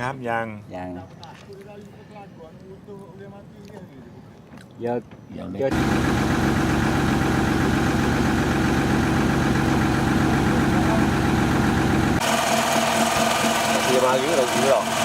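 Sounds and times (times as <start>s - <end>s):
boat engine running: 5.7s - 15.0s.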